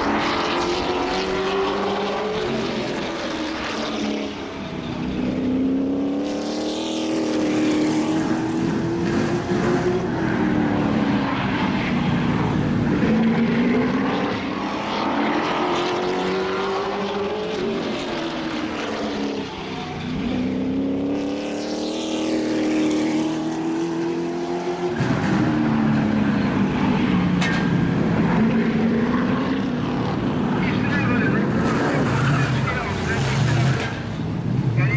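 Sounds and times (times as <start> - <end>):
race car engines: 0.0 - 34.9.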